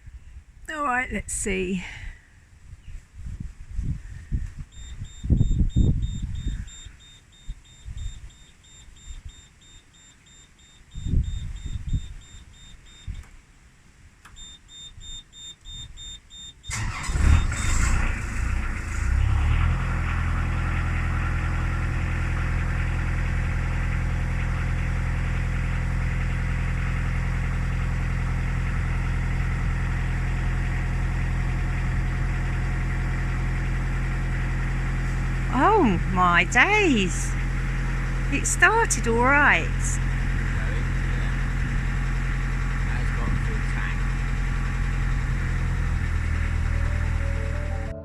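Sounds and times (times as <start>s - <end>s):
high pulsing beep: 4.8s - 13.1s
diesel engine cranking and idling: 16.7s - 48.0s.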